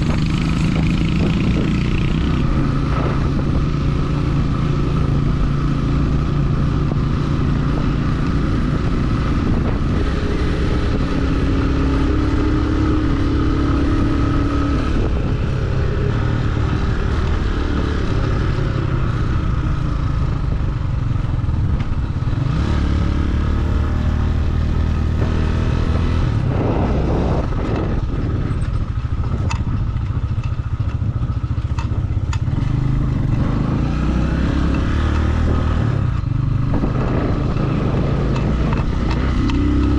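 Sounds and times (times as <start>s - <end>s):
motorcycle engine running: 0.0s - 39.9s
wind and road noise: 0.0s - 39.9s
sharp ticks: 29.3s - 32.5s.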